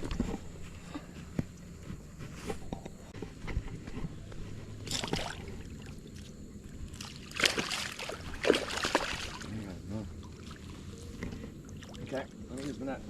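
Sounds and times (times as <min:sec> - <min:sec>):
water splashing and sloshing: 0:03.1 - 0:13.0.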